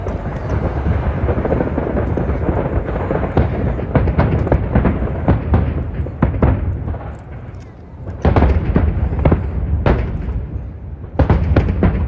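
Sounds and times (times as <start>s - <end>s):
fireworks bangs and crackles: 0.0s - 12.0s
fireworks bursts rumbling: 0.0s - 12.0s
wind buffeting microphone: 0.0s - 12.0s.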